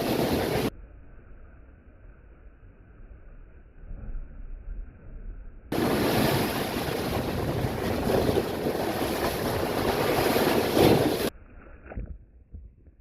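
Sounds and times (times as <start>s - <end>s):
waves washing in: 0.0s - 0.7s, 5.7s - 11.3s.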